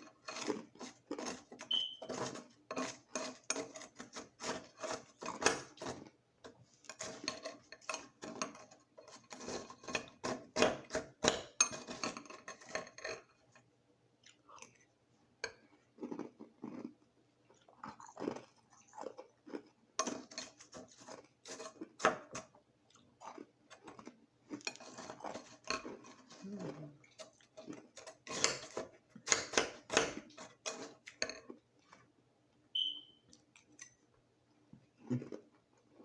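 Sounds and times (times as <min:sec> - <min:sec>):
ice crunched while chewing: 0:00.0 - 0:06.2, 0:14.2 - 0:32.1
high squeak: 0:01.7 - 0:02.2, 0:32.8 - 0:33.2.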